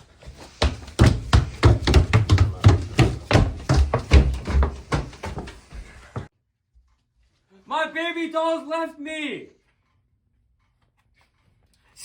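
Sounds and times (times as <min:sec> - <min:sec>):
thumps and knocks of scuffle: 0:00.2 - 0:06.3.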